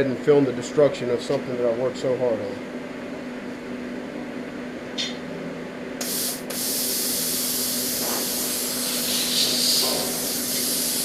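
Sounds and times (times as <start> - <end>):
plasma cutter torch hissing: 6.0 - 11.0.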